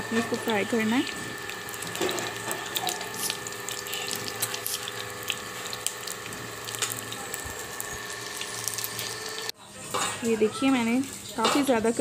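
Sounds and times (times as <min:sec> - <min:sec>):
meat sizzling in a pan: 0:00.0 - 0:09.5.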